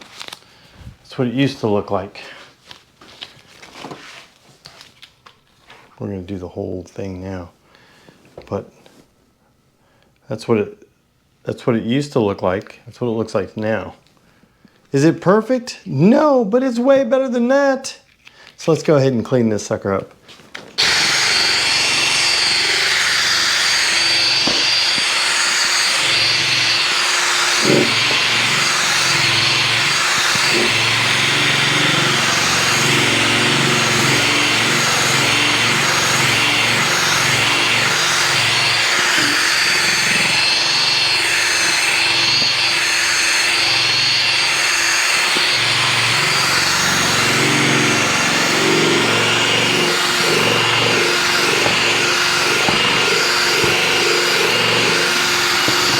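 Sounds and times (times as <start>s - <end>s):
power drill polishing plastic: 20.8s - 55.9s.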